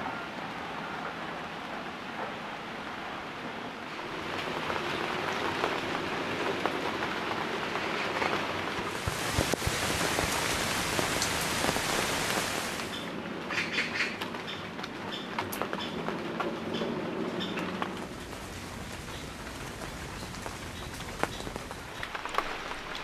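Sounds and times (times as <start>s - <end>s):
rain on a tent: 0.0s - 23.0s
raindrops ticking on fabric: 4.0s - 13.2s, 14.2s - 23.0s.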